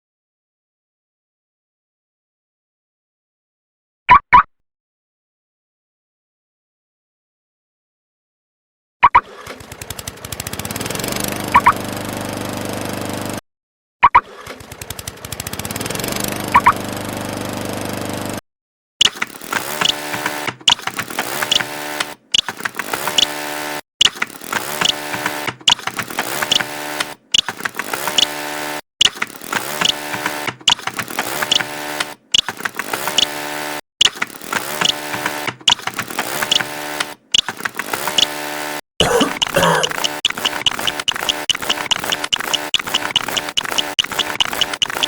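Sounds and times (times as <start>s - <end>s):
lawn mower engine starting and running: 9.3s - 13.4s, 14.3s - 18.4s.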